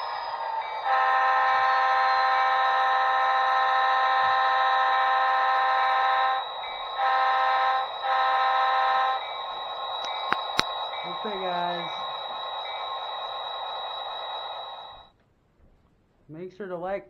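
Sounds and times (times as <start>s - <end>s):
model train horn through speaker: 0.8s - 9.4s.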